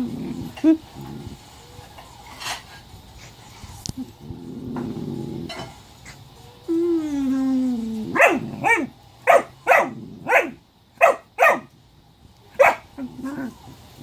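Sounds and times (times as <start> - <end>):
dog whining: 6.6 - 11.6, 12.6 - 13.8.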